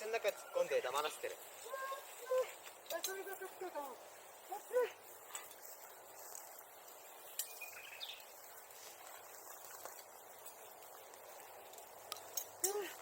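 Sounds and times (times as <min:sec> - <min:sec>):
faint outdoor hiss: 0:00.0 - 0:13.0
high chirp: 0:07.2 - 0:08.3.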